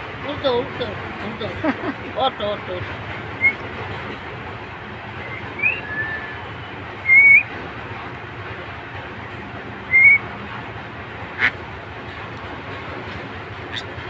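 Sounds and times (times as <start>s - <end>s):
steady rushing background noise: 0.0s - 14.0s
bird high whistled calls: 3.4s - 3.6s, 5.2s - 7.5s, 9.9s - 10.3s.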